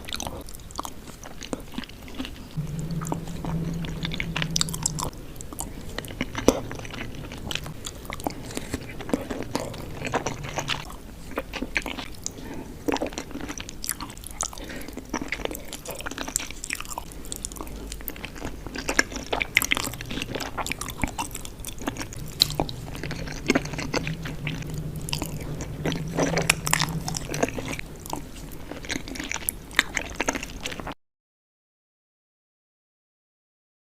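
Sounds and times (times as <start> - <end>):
person chewing food: 6.1 - 30.9.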